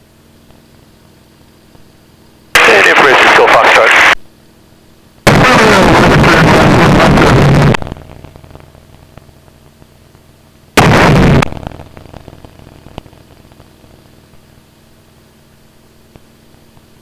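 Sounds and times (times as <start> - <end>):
aircraft engine drone: 1.4 - 15.6
radio noise bursts: 2.6 - 4.2.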